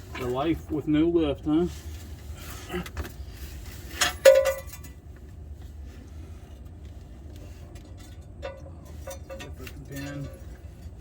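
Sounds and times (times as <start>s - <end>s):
low steady hum: 0.0s - 11.0s
metal clank ringing: 4.0s - 5.0s.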